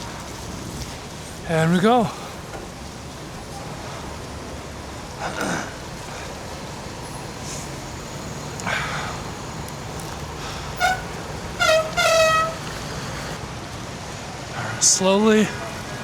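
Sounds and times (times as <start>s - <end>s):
road traffic: 0.0s - 16.0s
vehicle horn honking: 10.7s - 13.4s.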